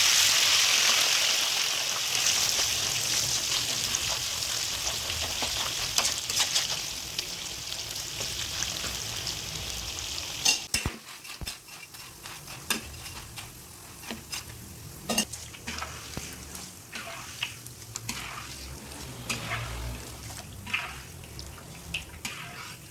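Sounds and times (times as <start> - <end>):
food sizzling in hot oil: 0.0 - 22.9.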